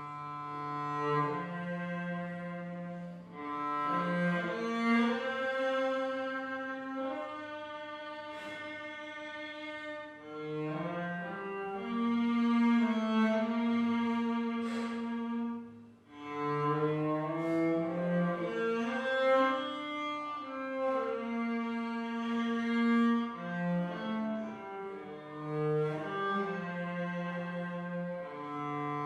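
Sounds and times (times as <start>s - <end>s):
cello playing hymn tune: 0.0s - 29.0s.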